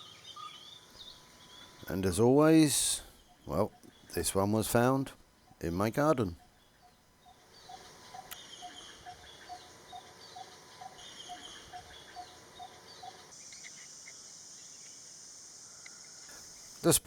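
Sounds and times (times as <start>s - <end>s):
birds chirping: 0.0s - 17.0s
insect buzzing: 6.8s - 17.0s.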